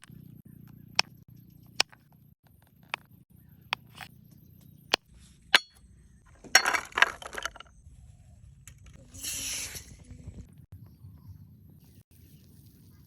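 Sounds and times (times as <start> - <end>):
sharp clinks and knocks: 5.5 - 5.8.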